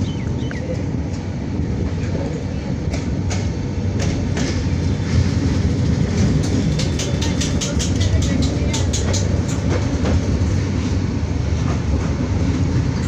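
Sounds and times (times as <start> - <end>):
train wheels rumbling on track: 0.0 - 13.0
sharp track clacks: 2.8 - 10.6.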